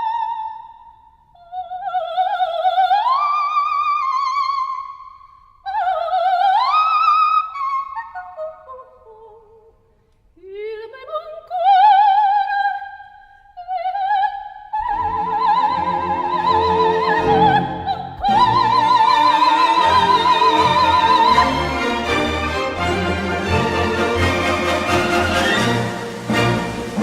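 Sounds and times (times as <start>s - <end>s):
operatic soprano singing: 0.0s - 5.0s, 5.6s - 9.7s, 10.4s - 27.0s
orchestra playing: 15.3s - 27.0s.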